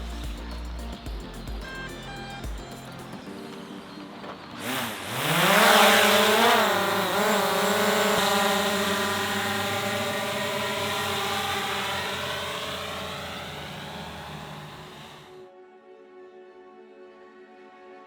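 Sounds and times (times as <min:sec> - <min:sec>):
drone propellers whining: 0:04.2 - 0:15.4.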